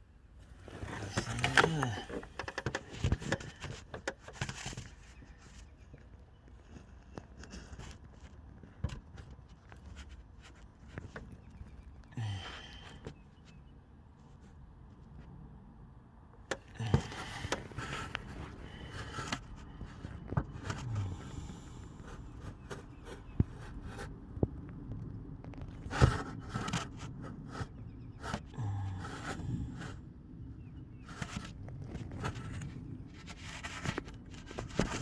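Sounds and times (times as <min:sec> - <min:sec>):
hard objects knocking and scraping: 0:00.6 - 0:06.1, 0:16.5 - 0:23.9, 0:31.1 - 0:35.0.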